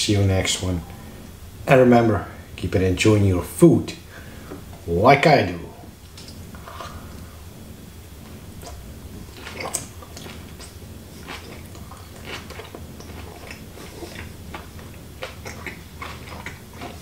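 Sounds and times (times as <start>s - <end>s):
low steady hum: 0.0s - 17.0s
person chewing food: 8.2s - 17.0s.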